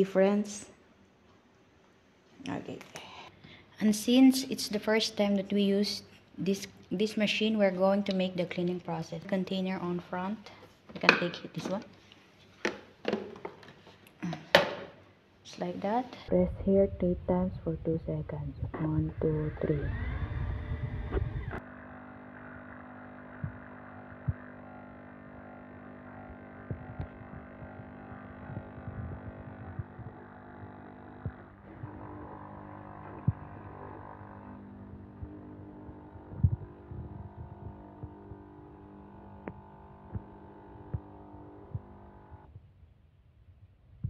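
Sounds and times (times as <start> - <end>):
coffee machine pump hum: 18.6 - 42.5.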